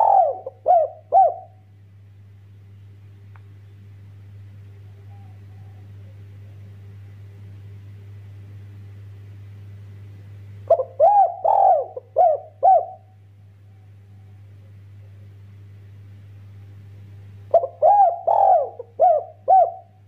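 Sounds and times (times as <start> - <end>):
dove cooing: 0.0 - 1.6, 4.7 - 6.3, 10.7 - 13.1, 17.5 - 20.0
steady low hum: 0.0 - 20.0.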